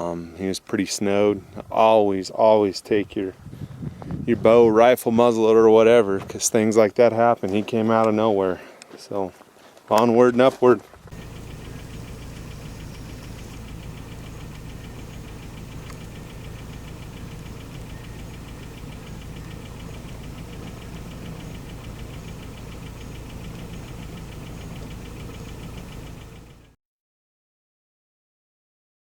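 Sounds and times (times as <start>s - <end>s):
ticking clatter: 11.1s - 26.7s
truck engine idling: 11.1s - 26.8s.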